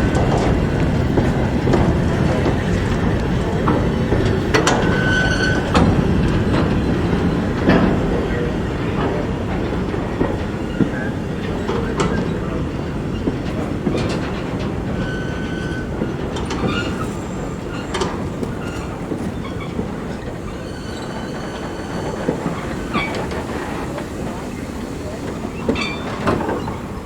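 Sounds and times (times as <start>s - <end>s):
train wheels rumbling on track: 0.0s - 27.0s
wheels clicking over rail joints: 0.0s - 27.0s
thin wheel squeal: 4.7s - 5.7s, 18.6s - 23.5s, 24.8s - 27.0s.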